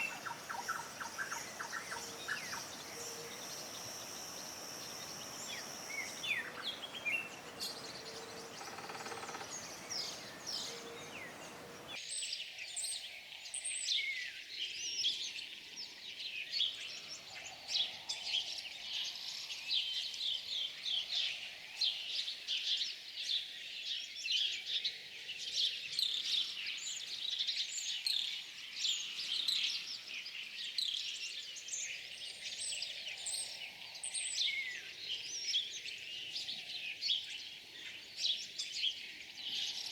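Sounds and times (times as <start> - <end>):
songbirds chirping: 0.0 - 12.0
steady hiss: 0.0 - 12.0.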